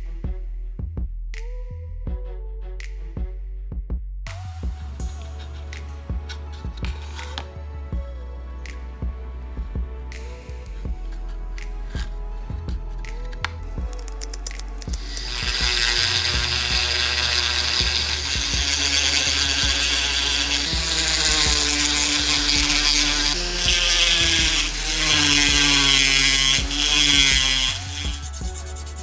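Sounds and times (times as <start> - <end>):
rotary tool grinding metal: 5.0 - 7.5, 10.7 - 29.0.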